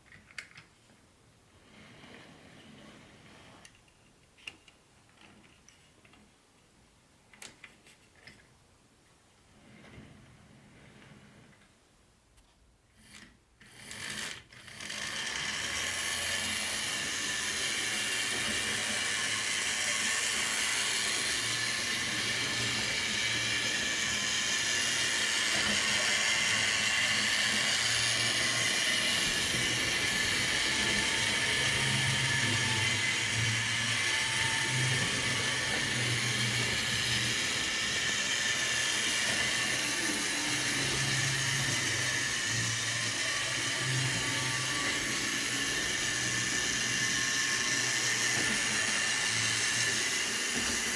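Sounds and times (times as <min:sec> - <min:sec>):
model train motor whirring: 0:12.9 - 0:50.9.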